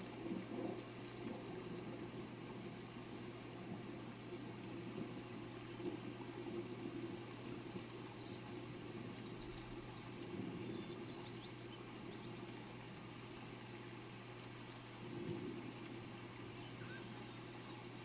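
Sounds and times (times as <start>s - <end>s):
steady rain falling: 0.0s - 18.0s
faint high bird chirps: 16.5s - 18.0s.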